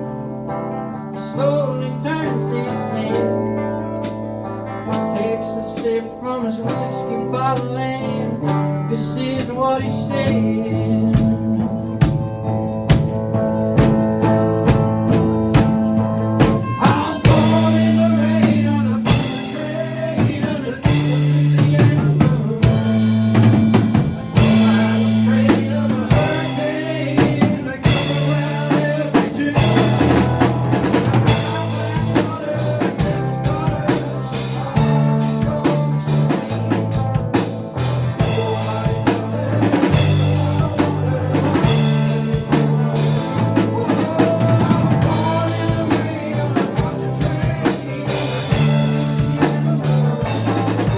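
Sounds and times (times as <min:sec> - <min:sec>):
bass guitar low notes: 0:00.0 - 0:50.9
guitar line with bending notes: 0:00.0 - 0:50.9
drum kit with snare and rimshots: 0:04.0 - 0:04.3, 0:11.1 - 0:50.9.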